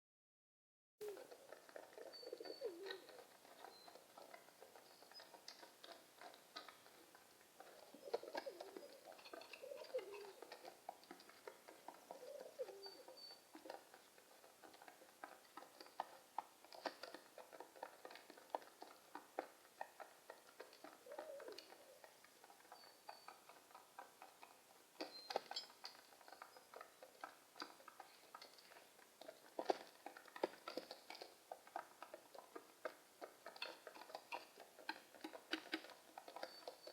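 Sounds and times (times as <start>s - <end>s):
pigeons cooing: 1.0s - 5.3s, 7.6s - 10.8s, 11.4s - 13.8s, 20.8s - 22.2s, 33.6s - 36.9s
small sharp ticks and taps: 2.8s - 36.9s.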